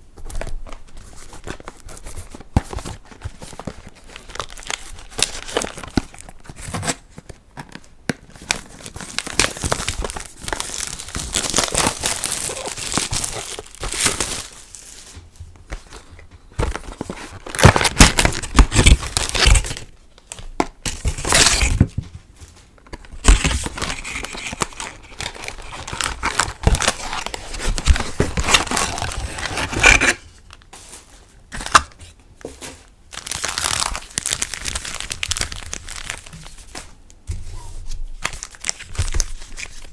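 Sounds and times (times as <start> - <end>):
foil packs crinkling and tearing: 0.4 - 15.2, 16.6 - 22.0, 23.0 - 32.1, 33.1 - 37.0, 38.1 - 39.9.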